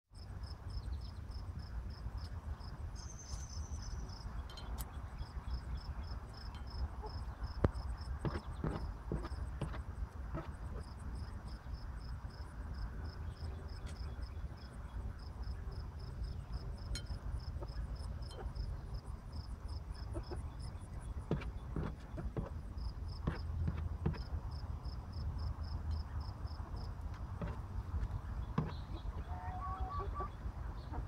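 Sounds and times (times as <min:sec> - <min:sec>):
insects chirping: 0:00.2 - 0:29.3
chickens pecking food: 0:07.0 - 0:11.0, 0:20.0 - 0:24.6.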